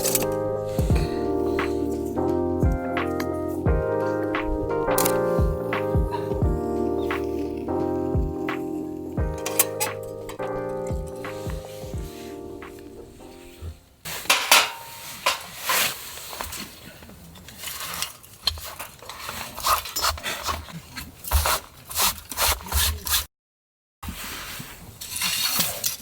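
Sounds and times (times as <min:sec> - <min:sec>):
hard objects clinking and scraping: 0:00.0 - 0:00.9
background music: 0:00.0 - 0:14.0.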